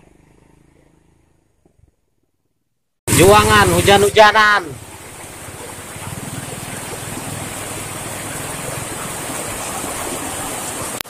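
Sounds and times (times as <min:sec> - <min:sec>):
motorcycle engine riding off: 0:00.0 - 0:02.4, 0:03.1 - 0:11.0.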